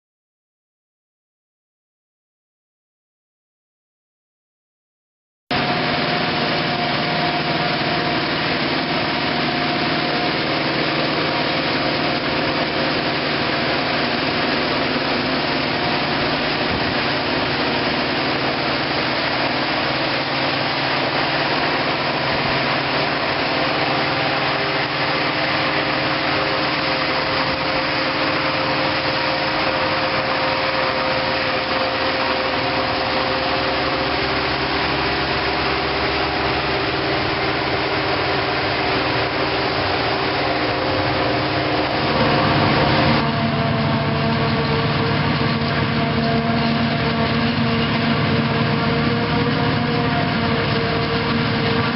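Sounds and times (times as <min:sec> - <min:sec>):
steady engine noise: 0:05.5 - 0:51.9
whining tones: 0:05.6 - 0:51.9.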